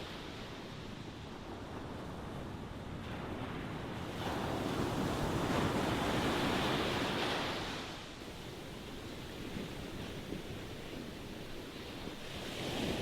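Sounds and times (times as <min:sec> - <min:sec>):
ocean waves breaking: 0:04.2 - 0:13.0.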